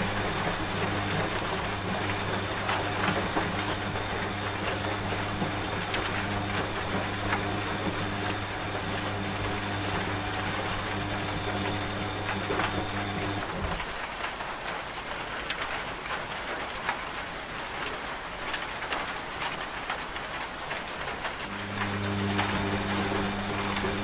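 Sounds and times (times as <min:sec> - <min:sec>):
washing machine humming: 0:00.0 - 0:14.2, 0:21.2 - 0:24.0
steady rain: 0:00.0 - 0:24.0.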